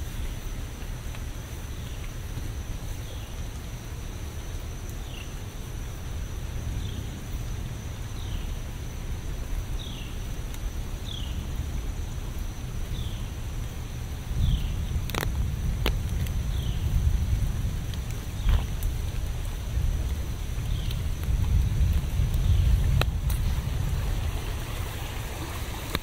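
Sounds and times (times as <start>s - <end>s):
steady rain: 0.0s - 26.0s
low rumble: 5.4s - 25.8s.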